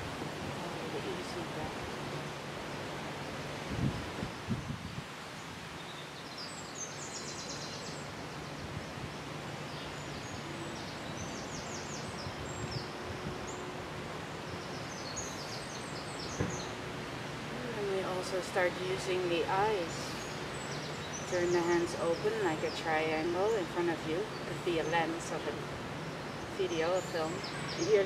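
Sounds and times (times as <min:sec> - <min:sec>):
outdoor background hiss: 0:00.0 - 0:28.0
songbird singing high trills: 0:24.2 - 0:28.0.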